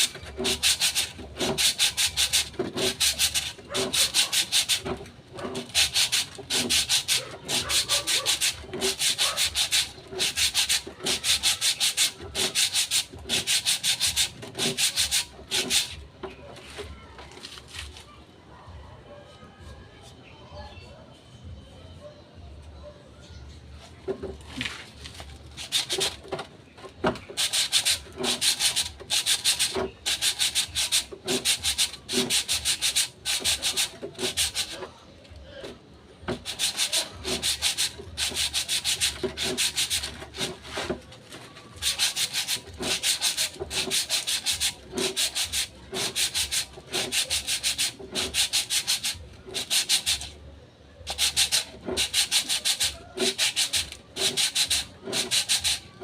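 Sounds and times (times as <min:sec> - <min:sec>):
sandpaper rubbing on metal drum: 0:00.0 - 0:16.0, 0:24.6 - 0:26.4, 0:27.1 - 0:34.9, 0:36.3 - 0:50.4, 0:51.1 - 0:55.9.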